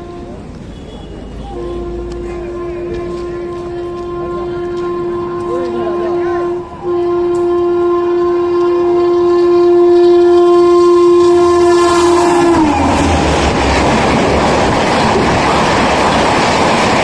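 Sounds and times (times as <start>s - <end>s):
locomotive horn blast: 0.0s - 16.0s
train rushing and clattering by: 11.2s - 17.0s.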